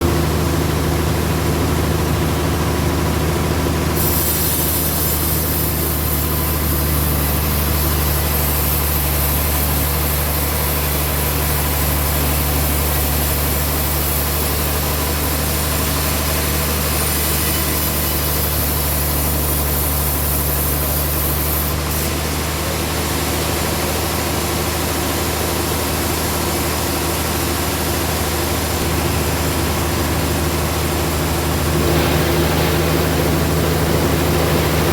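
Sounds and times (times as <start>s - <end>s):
sawmill engine drone: 0.0s - 34.9s
saw blade cutting wood hiss: 4.0s - 22.5s.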